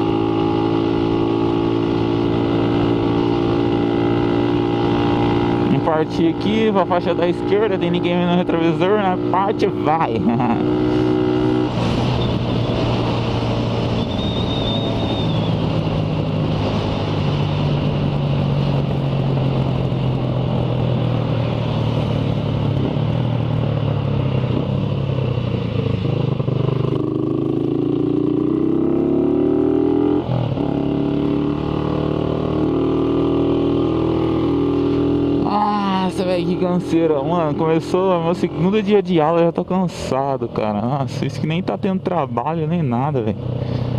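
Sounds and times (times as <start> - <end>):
motorcycle engine running: 0.0 - 43.9
wind rushing over microphone: 9.0 - 41.1.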